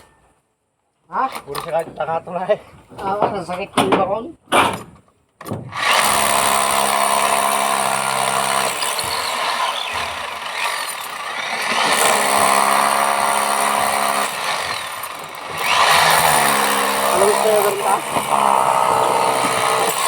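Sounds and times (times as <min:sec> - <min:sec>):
electric hammer drill buzzing: 0:05.8 - 0:20.0.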